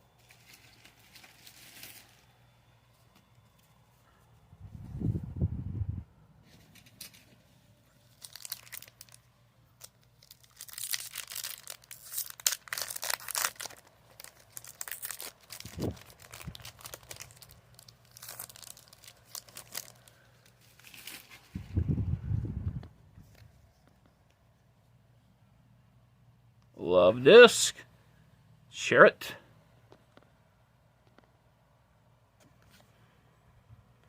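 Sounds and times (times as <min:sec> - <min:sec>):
foil wrapper tearing and crinkling: 0:00.2 - 0:02.3, 0:08.1 - 0:21.6.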